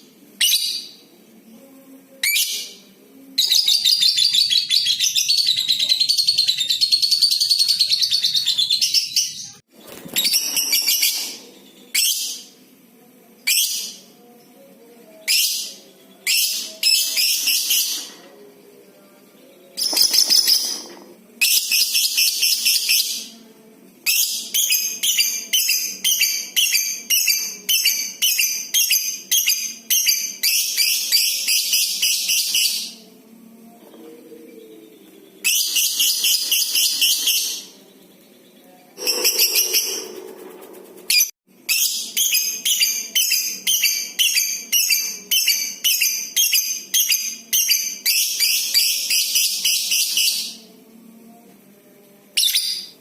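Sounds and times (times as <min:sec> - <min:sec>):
lovebird chattering: 0:39.0 - 0:41.3.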